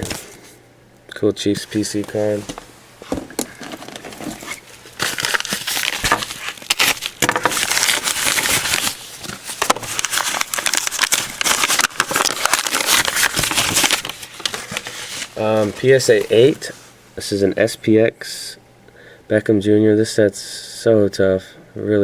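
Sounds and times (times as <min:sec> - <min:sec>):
packaging crinkling and rustling: 0:00.0 - 0:00.5, 0:01.8 - 0:16.7.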